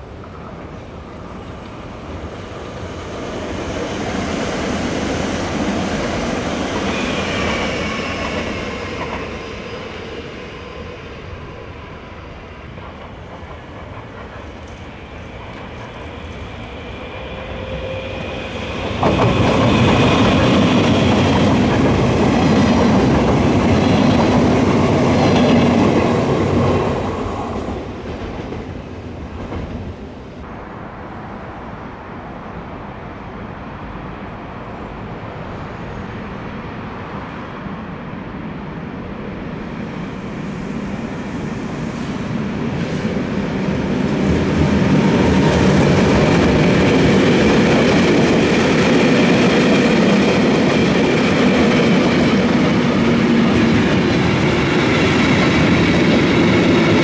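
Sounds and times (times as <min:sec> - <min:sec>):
passing train wheel rumble: 0:00.0 - 0:57.0
train wheel squeal: 0:06.5 - 0:21.4.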